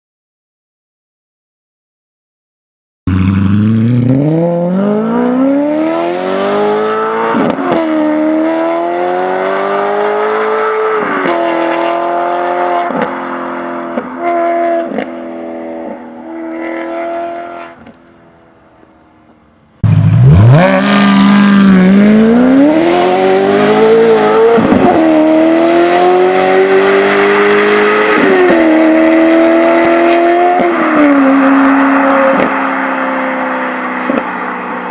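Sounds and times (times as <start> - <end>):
car engine accelerating hard: 3.1 - 17.7, 19.8 - 34.3.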